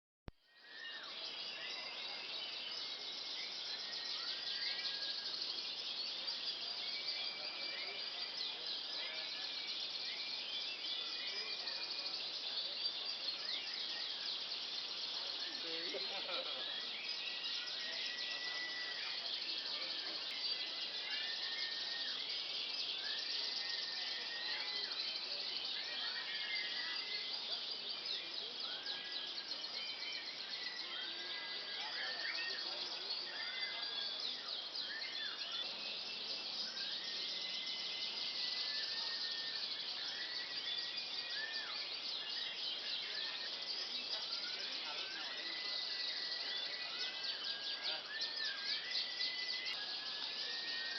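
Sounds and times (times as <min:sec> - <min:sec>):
birds twittering: 0:00.6 - 0:50.9
canaries whistling: 0:10.7 - 0:50.9.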